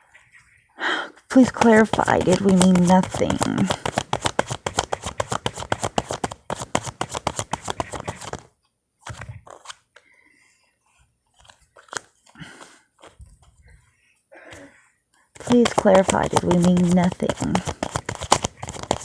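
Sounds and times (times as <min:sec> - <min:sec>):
cards shuffling: 0:01.3 - 0:09.8, 0:11.4 - 0:13.2, 0:15.4 - 0:19.0
cards tapping and rustling: 0:01.3 - 0:09.8, 0:11.4 - 0:13.2, 0:15.4 - 0:19.0.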